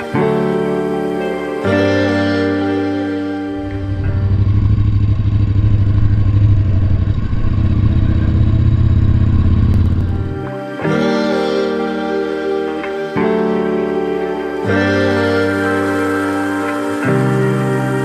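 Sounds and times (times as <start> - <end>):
motorcycle engine running: 3.6 - 10.6.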